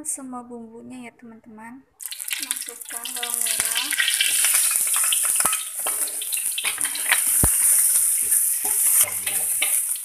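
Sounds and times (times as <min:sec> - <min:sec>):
shallots sizzling in hot oil: 0:02.0 - 0:10.0
spatula scraping a wok: 0:03.4 - 0:10.0.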